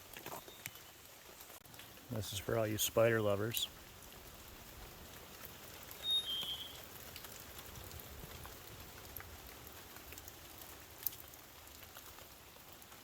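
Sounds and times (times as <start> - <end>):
light rain hiss: 0.0 - 13.0
water dripping ticks: 0.0 - 13.0
high chirp: 6.0 - 6.8.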